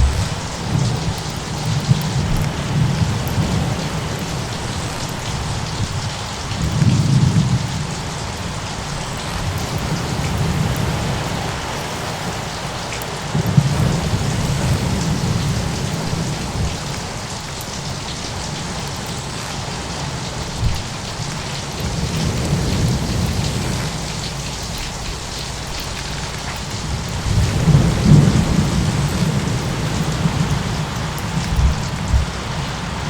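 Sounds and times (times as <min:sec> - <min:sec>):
short deep thuds: 0:00.0 - 0:00.6
rolling thunder: 0:00.0 - 0:12.3, 0:26.8 - 0:33.0
rain hissing: 0:00.0 - 0:33.0.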